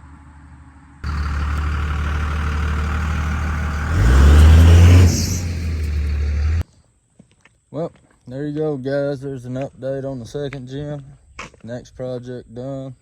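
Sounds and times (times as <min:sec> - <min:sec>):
diesel engine idling: 0:01.0 - 0:06.6
diesel engine revving: 0:01.0 - 0:06.6.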